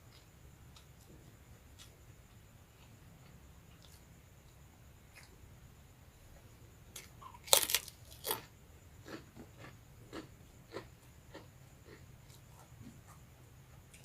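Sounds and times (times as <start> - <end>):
crunching bite into crackers: 7.0 - 8.5
chewing crunches: 7.0 - 12.4.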